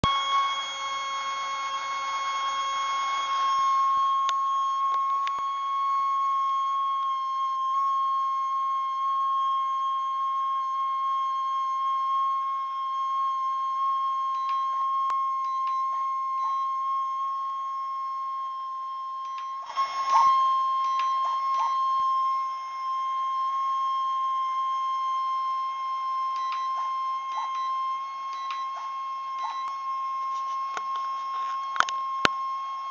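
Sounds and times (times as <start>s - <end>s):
servo buzzing whine: 0.0s - 7.0s, 19.4s - 24.8s.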